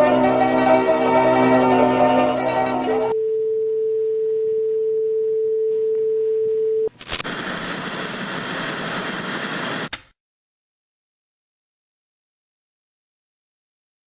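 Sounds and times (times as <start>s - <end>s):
steady test tone: 0.0s - 3.4s
tv static hiss: 6.9s - 10.0s.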